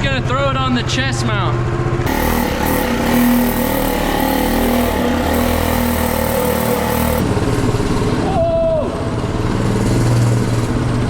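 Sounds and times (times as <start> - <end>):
mini bike engine running: 2.1 - 8.1.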